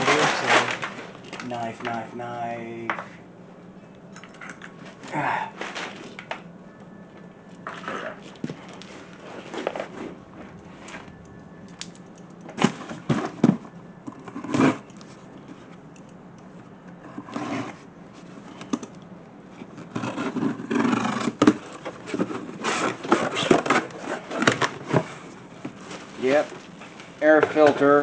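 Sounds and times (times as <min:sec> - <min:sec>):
plastic and cardboard rustling: 0:00.0 - 0:02.1, 0:05.6 - 0:06.3, 0:07.6 - 0:11.2, 0:19.5 - 0:28.0.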